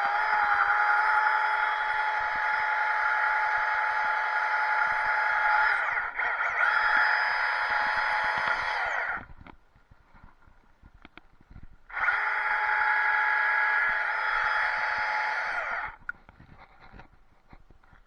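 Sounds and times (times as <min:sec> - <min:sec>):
chainsaw running: 0:00.0 - 0:09.3, 0:11.9 - 0:16.0.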